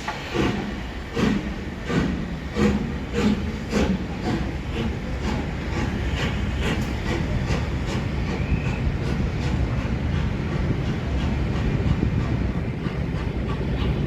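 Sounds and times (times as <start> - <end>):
train rumbling past: 0.0 - 14.0.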